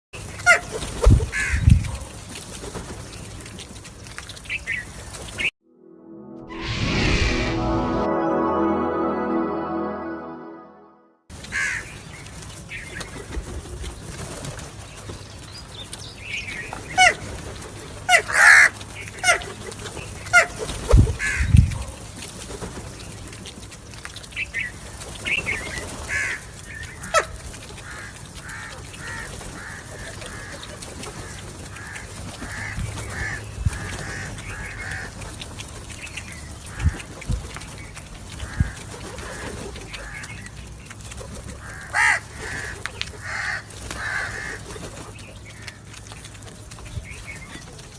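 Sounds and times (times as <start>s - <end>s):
crows cawing: 11.5s - 11.9s, 26.1s - 26.4s, 27.1s - 30.6s, 31.8s - 33.4s, 34.0s - 35.1s, 38.4s - 39.4s, 41.6s - 44.6s.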